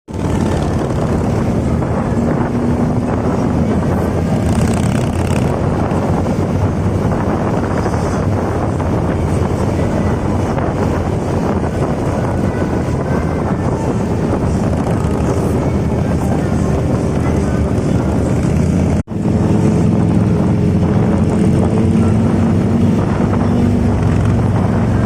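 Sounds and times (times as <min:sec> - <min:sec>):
motorcycle engine running: 0:00.1 - 0:25.0
wind buffeting microphone: 0:00.1 - 0:25.0.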